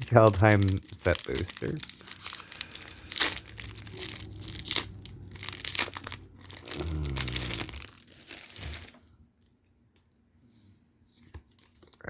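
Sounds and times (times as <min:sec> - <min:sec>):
foil wrapper crinkling and tearing: 0:00.0 - 0:09.0
brief low hum: 0:02.9 - 0:07.9.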